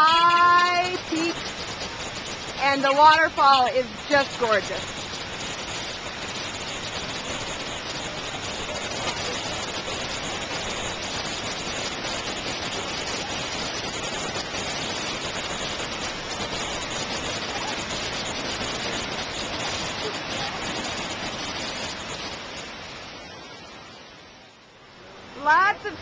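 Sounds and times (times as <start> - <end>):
waterfall pouring and splashing: 0.0 - 26.0.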